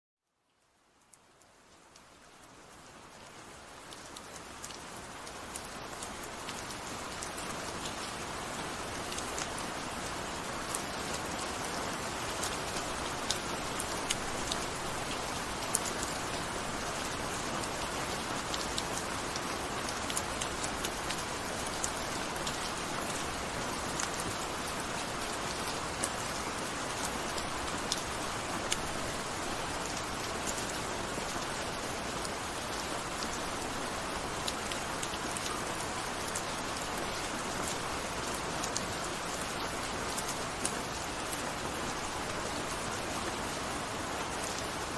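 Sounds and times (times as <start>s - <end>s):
gentle rain hiss: 0.2s - 44.9s
raindrops ticking on surface: 0.2s - 44.9s.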